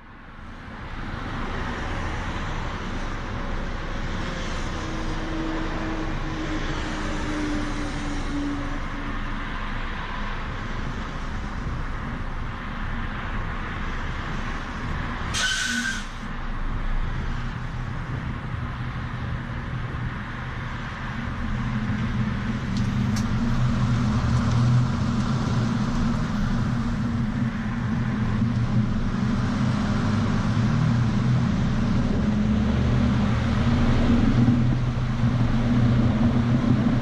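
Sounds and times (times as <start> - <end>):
wind noise: 0.9 - 37.0
air hiss burst: 15.4 - 16.2.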